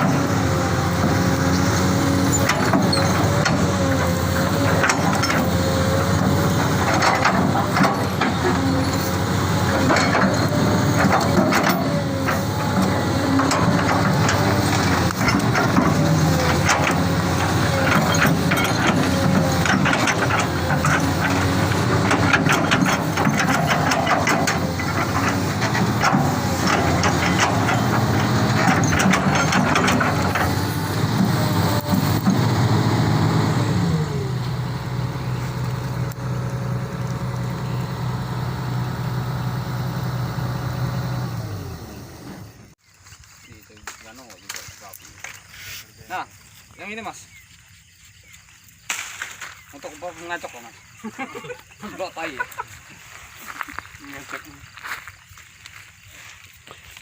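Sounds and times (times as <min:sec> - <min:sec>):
diesel engine running: 0:00.0 - 0:42.8
sharp clicks and knocks: 0:02.4 - 0:32.5.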